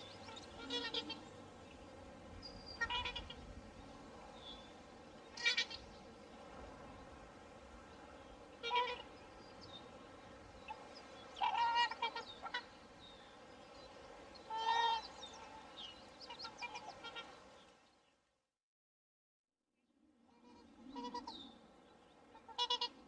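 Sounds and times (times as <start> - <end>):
swans calling: 0.0 - 1.4, 2.6 - 3.4, 5.3 - 5.9, 8.6 - 9.2, 10.6 - 13.0, 14.4 - 17.4, 20.4 - 21.5, 22.3 - 23.0
faint background noise: 0.0 - 18.3.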